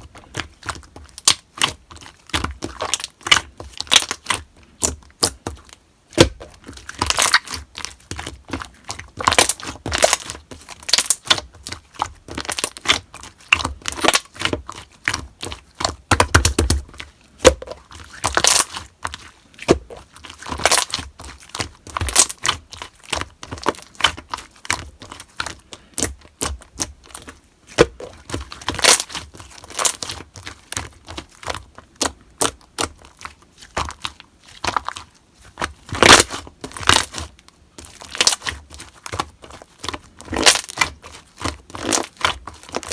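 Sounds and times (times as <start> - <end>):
slime popping and crackling: 0.2 - 42.9.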